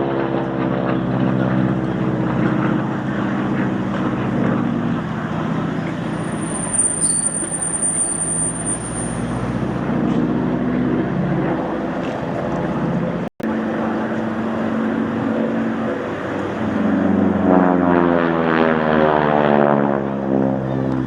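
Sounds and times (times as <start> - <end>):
aircraft engine running: 0.0 - 21.0
thin high whine: 5.8 - 9.8.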